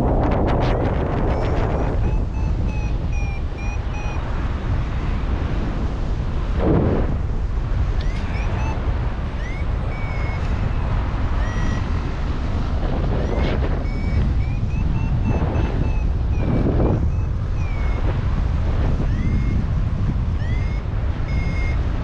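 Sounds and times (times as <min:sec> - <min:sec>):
wind buffeting microphone: 0:00.0 - 0:22.0
variometer beeping chirps: 0:00.6 - 0:05.3, 0:07.9 - 0:22.0.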